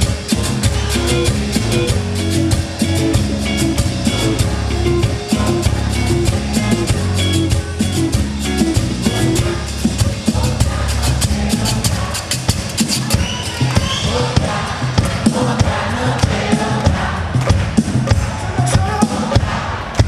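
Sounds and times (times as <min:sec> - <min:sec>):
guitar: 0:00.0 - 0:19.3
bass: 0:00.0 - 0:20.0
drum kit beat: 0:00.0 - 0:20.0.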